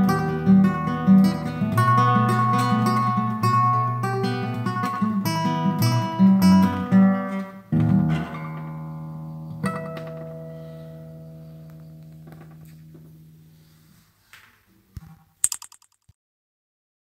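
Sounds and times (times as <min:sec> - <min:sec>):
acoustic guitar music: 0:00.0 - 0:13.4.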